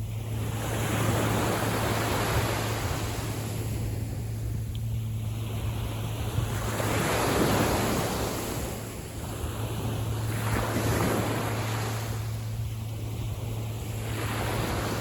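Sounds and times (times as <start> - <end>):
small sea waves washing in: 0.0 - 15.0
wind rumble on microphone: 0.0 - 15.0.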